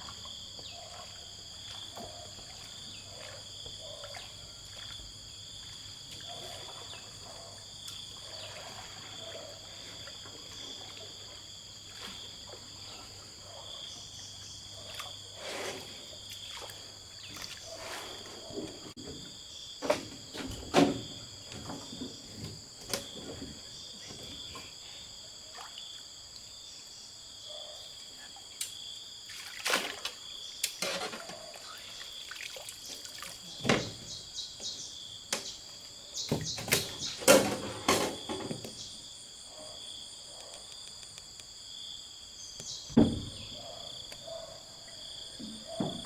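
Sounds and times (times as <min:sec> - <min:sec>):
insects trilling: 0:00.0 - 0:46.0
short knocks or splashes: 0:29.3 - 0:30.2, 0:32.3 - 0:34.3.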